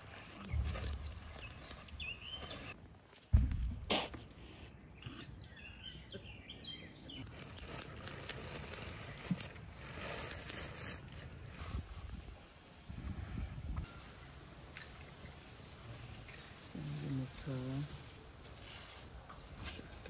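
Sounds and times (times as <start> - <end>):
small birds chirping: 0.4 - 2.8, 4.2 - 8.2.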